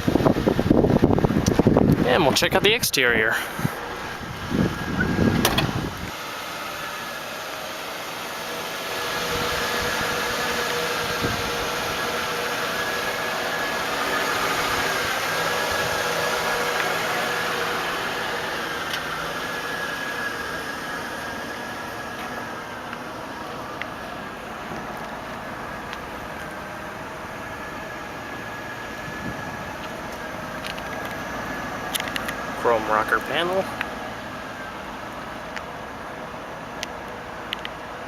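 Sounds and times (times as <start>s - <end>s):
car engine idling: 0.0s - 38.0s
low thump: 5.3s - 5.8s.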